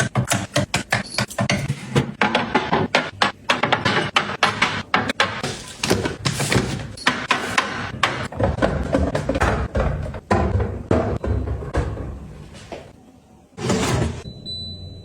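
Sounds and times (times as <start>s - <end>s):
food containers clicking and knocking: 0.0s - 12.2s.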